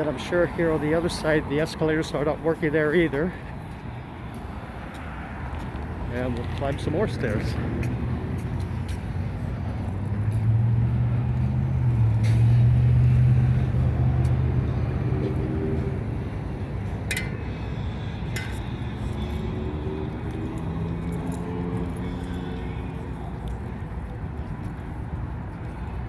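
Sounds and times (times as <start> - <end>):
vehicle engine hum: 0.0 - 26.0.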